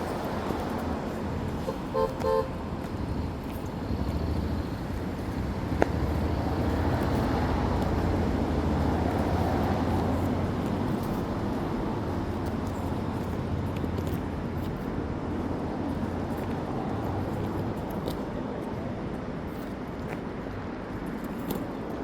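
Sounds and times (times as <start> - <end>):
road traffic rumbling: 0.0 - 22.0
car horn toots: 1.7 - 2.6.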